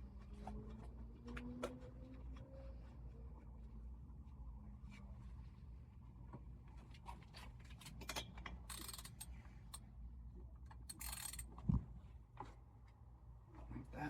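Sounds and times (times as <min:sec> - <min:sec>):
clicks of tools and parts: 0:07.7 - 0:09.8, 0:10.7 - 0:11.6.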